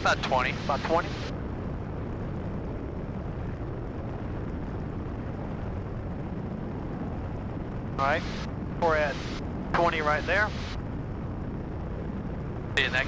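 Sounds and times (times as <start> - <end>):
small plane engine and propeller drone: 0.0 - 13.0
airflow noise: 8.0 - 11.1.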